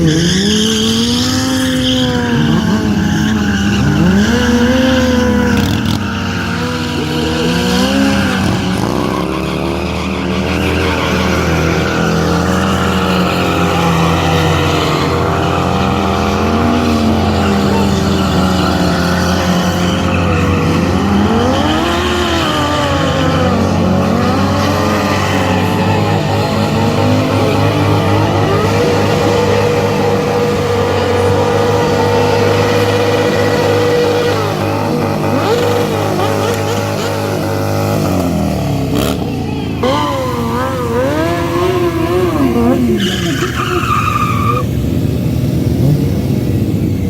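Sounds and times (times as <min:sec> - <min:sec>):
motorcycle engines revving: 0:00.0 - 0:47.0.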